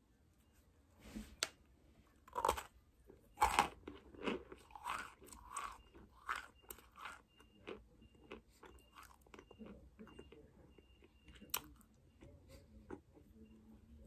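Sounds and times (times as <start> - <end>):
person crunching while chewing: 2.3 - 9.4.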